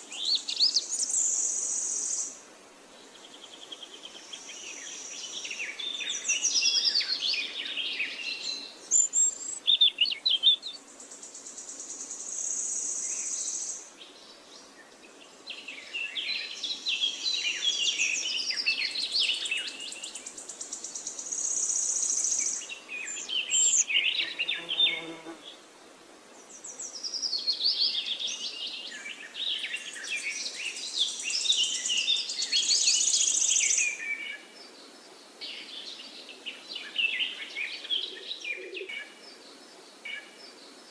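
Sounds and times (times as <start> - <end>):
birds chirping and singing: 4.7 - 10.8, 15.5 - 25.3, 35.4 - 40.7.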